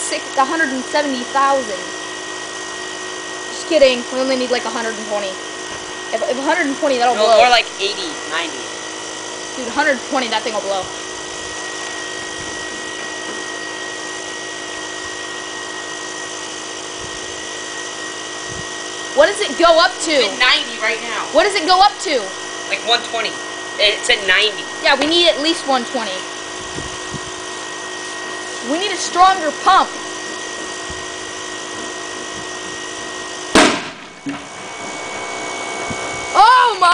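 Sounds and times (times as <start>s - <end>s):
electric air pump running: 0.0s - 36.9s
ball bursting with loud bang: 33.5s - 35.0s.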